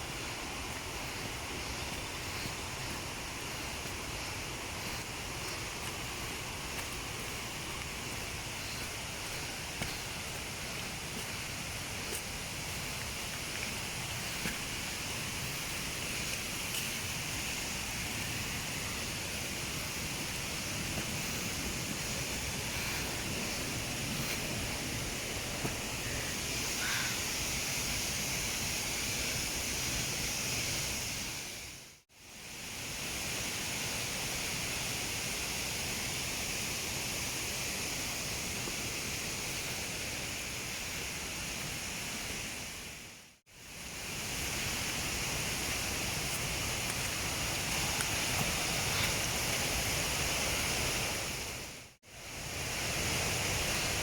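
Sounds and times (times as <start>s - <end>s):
waterfall rushing: 0.0s - 31.3s.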